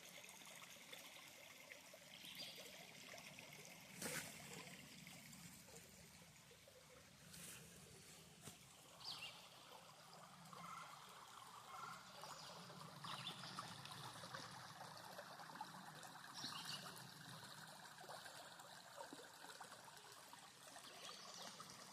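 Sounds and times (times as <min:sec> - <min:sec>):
small stream trickling: 0:00.0 - 0:21.9.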